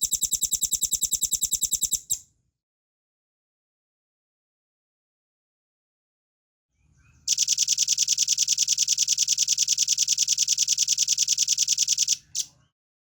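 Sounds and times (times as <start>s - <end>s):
bird high-pitched trill: 0.0s - 2.2s.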